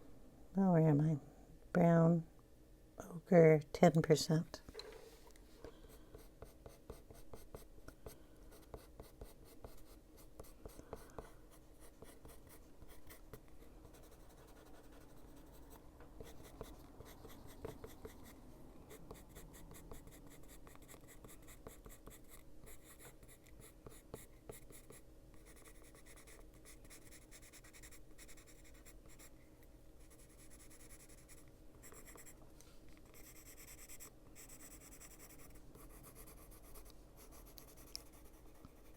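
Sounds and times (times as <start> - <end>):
pencil scratching on paper: 6.1 - 7.7, 8.5 - 29.3, 30.0 - 32.4, 33.1 - 38.9.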